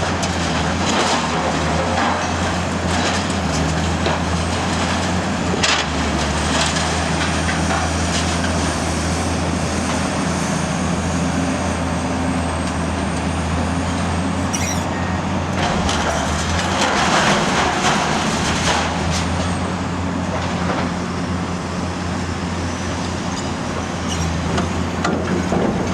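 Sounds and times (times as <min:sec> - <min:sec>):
metal clanking and crunching: 0:00.0 - 0:08.7, 0:14.4 - 0:21.3, 0:23.1 - 0:25.9
diesel engine running: 0:00.0 - 0:25.9.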